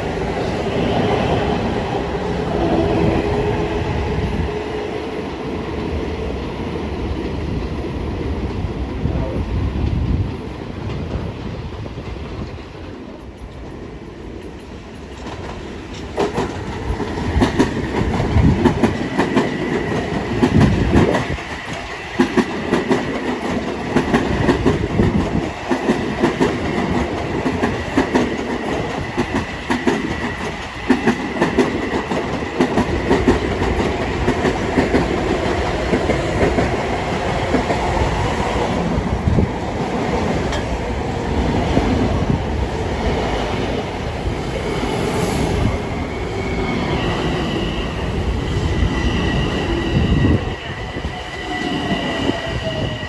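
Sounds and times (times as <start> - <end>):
high whine of train: 0.0 - 53.0
train wheels clicking over rail joints: 9.8 - 38.3.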